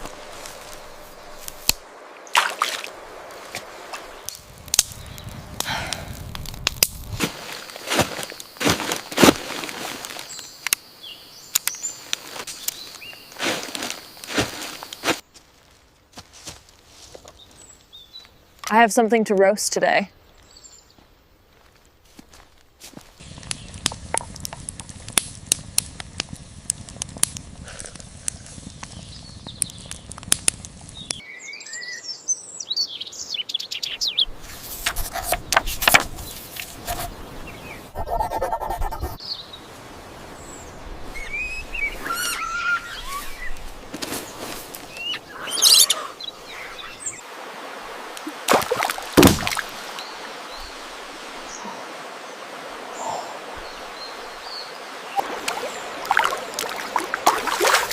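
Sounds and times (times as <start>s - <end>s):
birds chirping: 37.0s - 39.7s, 40.3s - 47.2s, 49.5s - 57.9s.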